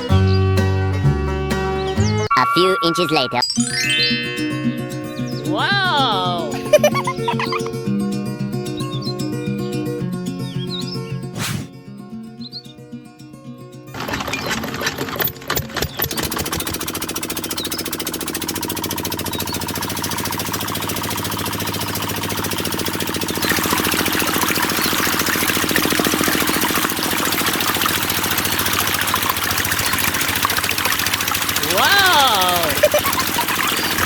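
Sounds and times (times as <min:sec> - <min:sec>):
small diesel engine running: 0:14.0 - 0:34.0.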